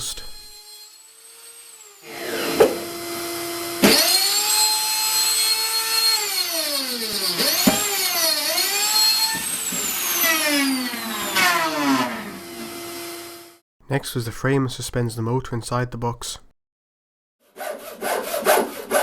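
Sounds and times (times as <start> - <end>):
electric router cutting: 0.4 - 13.6.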